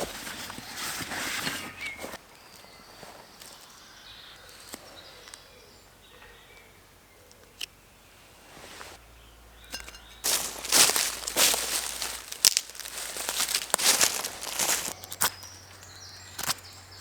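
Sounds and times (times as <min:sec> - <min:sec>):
dry leaves crunching and rustling: 0:10.2 - 0:15.8.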